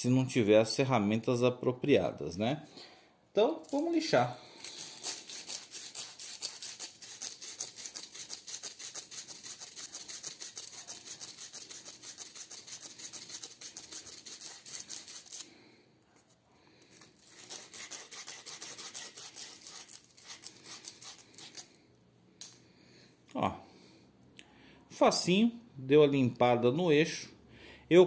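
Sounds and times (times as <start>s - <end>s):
sandpaper rubbing on steel shaft: 4.6s - 15.5s, 17.2s - 21.7s.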